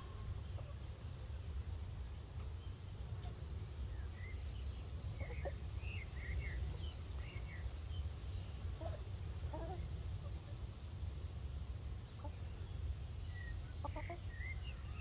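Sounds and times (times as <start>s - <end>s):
hens clucking: 5.1s - 5.6s, 13.8s - 14.3s.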